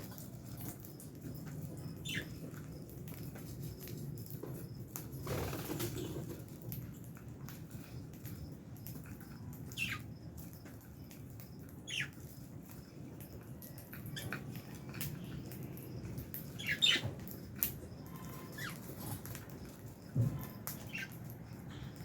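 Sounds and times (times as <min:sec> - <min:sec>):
birds rustling in cage: 0:00.0 - 0:09.2
lovebirds chirping: 0:01.7 - 0:02.8, 0:08.9 - 0:13.0, 0:13.6 - 0:19.7, 0:20.5 - 0:22.0.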